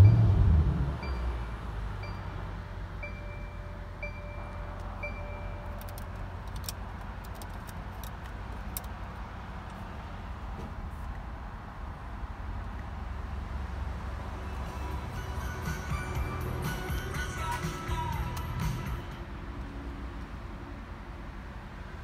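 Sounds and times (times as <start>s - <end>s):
dashboard warning chime beeping: 0.0s - 6.4s, 14.5s - 17.7s.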